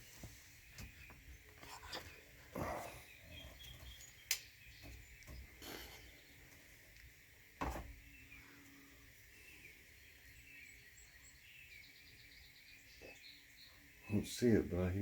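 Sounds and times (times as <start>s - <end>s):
small birds chirping: 0.0s - 15.0s
dull thumps: 7.6s - 8.0s.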